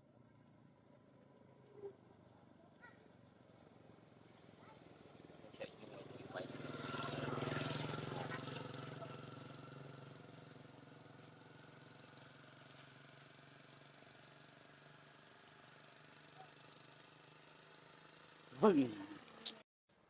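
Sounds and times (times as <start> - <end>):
engine running: 3.4 - 19.6.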